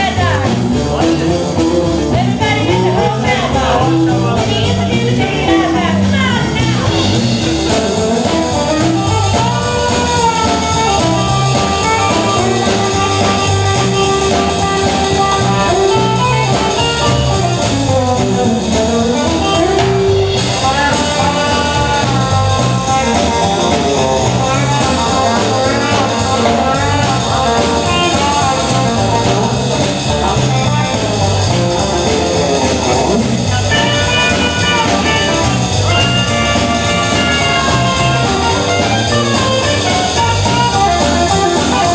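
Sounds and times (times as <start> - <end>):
live band playing rock and roll: 0.0 - 41.9.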